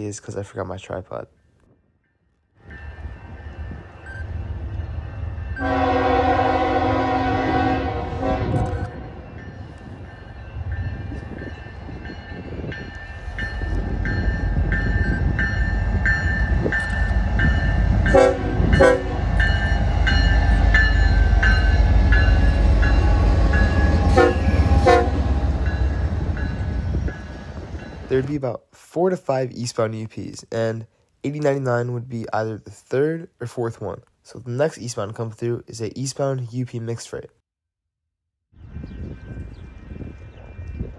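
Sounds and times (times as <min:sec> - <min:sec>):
freight train rumbling: 0:02.6 - 0:28.5
train horn: 0:05.6 - 0:09.1, 0:18.1 - 0:19.3, 0:23.0 - 0:25.5.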